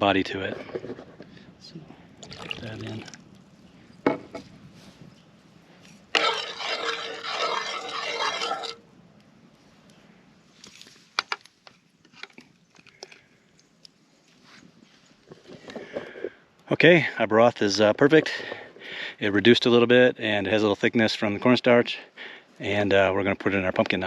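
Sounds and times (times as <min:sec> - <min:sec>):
utensil scraping a pot: 0:06.1 - 0:08.8.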